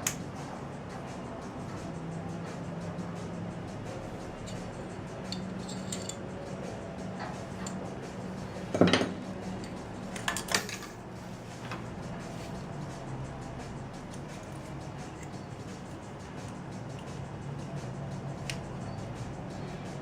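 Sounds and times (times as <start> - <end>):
steady low hum: 0.0 - 20.0
metal tools clinking: 5.3 - 6.3, 8.7 - 11.0.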